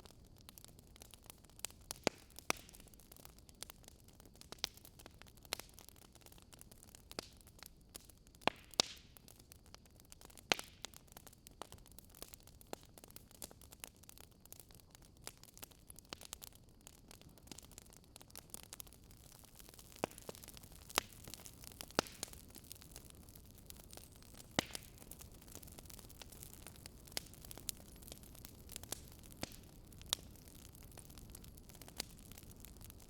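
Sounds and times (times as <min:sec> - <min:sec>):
faint fire hiss: 0:00.0 - 0:33.0
wood fire crackling and popping: 0:00.0 - 0:33.0.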